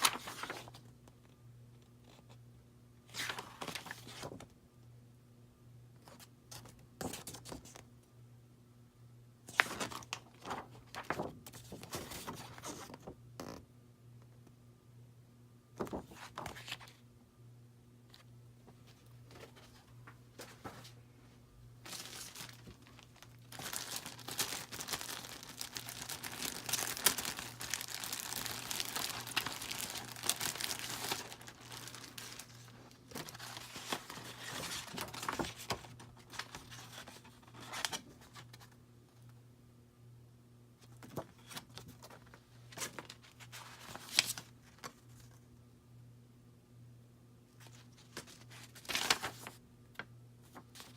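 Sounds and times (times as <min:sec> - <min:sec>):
packing material crinkling: 0:00.0 - 0:00.8, 0:21.8 - 0:37.2, 0:47.7 - 0:49.6.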